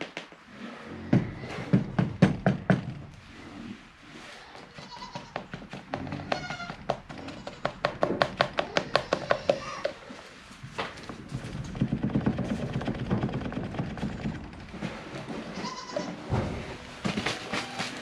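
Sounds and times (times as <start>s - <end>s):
goats bleating: 4.6s - 5.4s, 15.4s - 18.0s.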